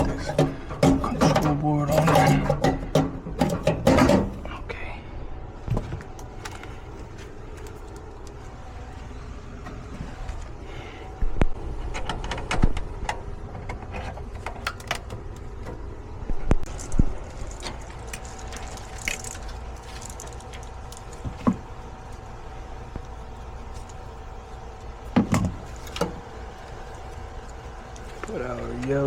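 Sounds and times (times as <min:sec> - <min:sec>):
low steady hum: 0:00.0 - 0:29.0
metal parts and tools clicking: 0:16.7 - 0:21.2.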